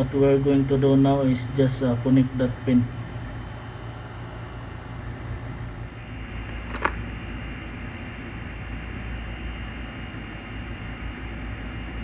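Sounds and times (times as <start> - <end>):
fan whirring: 3.0 - 12.0.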